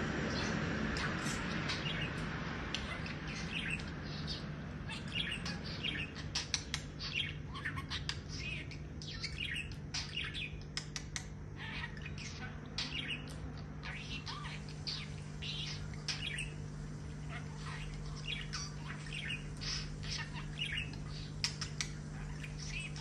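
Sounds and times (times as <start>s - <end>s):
steady low hum: 0.0s - 23.0s
budgerigar chattering and warbling: 0.3s - 16.6s, 17.2s - 23.0s.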